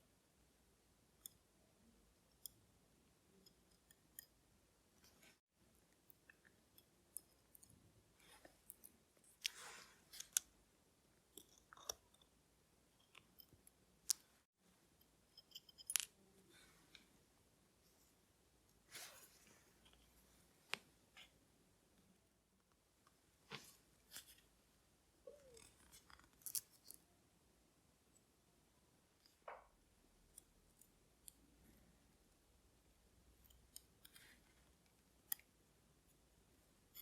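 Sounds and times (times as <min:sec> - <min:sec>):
small metal tools clicking: 0:15.4 - 0:16.1.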